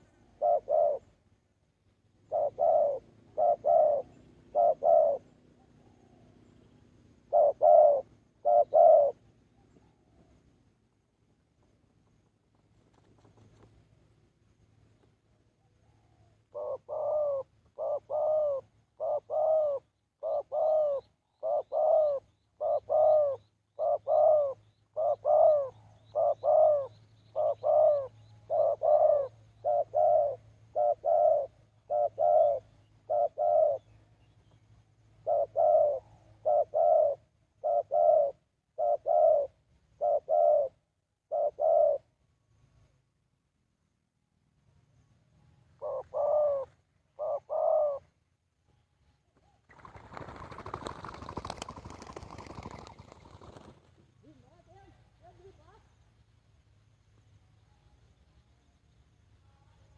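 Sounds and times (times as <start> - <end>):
dove cooing: 0.0 - 1.2, 2.2 - 10.3, 15.8 - 42.2, 45.8 - 48.2, 49.7 - 54.9.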